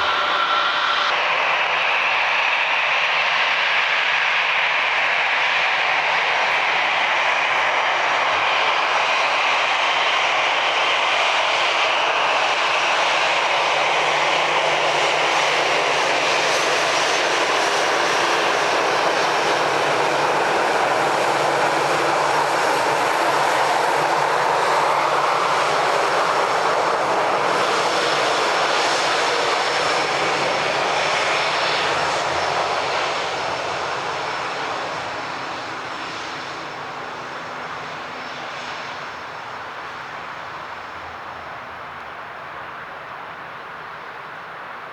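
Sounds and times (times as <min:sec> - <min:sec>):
jet engines roaring: 0:00.0 - 0:44.9.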